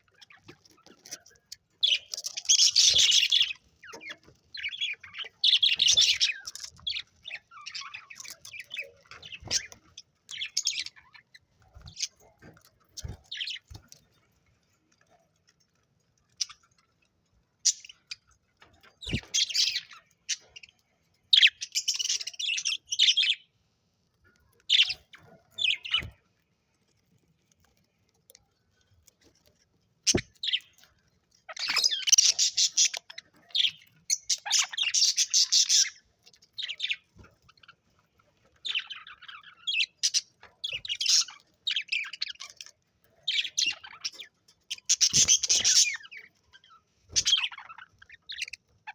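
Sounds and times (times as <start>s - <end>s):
budgerigars chirping: 1.8s - 11.3s, 31.5s - 36.0s, 38.7s - 42.6s, 44.8s - 46.2s, 47.2s - 48.6s.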